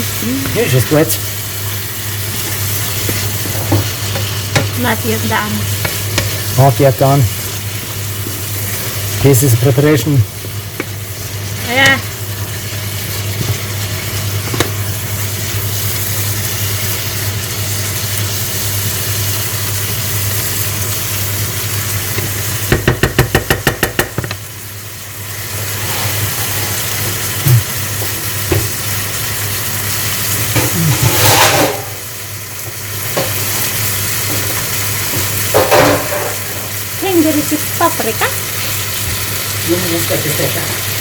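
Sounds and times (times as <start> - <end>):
chicken sizzling in a pan: 0.0 - 41.0
stirring scrape: 5.6 - 9.2, 30.9 - 31.9.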